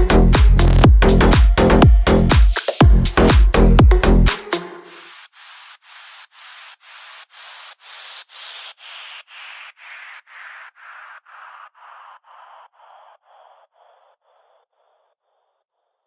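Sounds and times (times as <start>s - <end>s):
electronic dance music: 0.0s - 10.1s.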